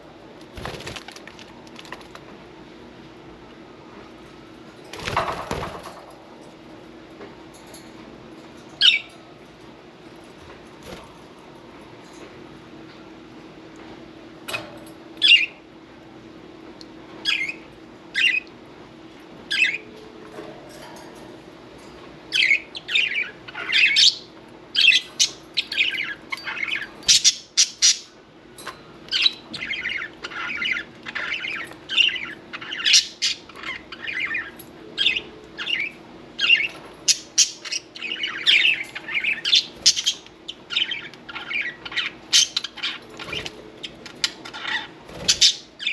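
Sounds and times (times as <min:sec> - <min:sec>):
faint steady hum: 0:00.0 - 0:45.9
budgerigars chirping and squawking: 0:17.3 - 0:18.5, 0:19.5 - 0:19.9, 0:22.3 - 0:28.1, 0:29.1 - 0:45.9.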